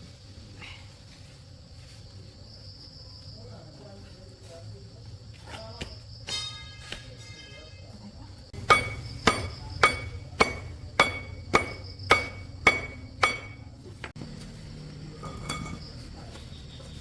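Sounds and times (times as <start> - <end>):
hammer striking metal: 6.3 - 7.6, 8.6 - 13.8, 15.2 - 15.8.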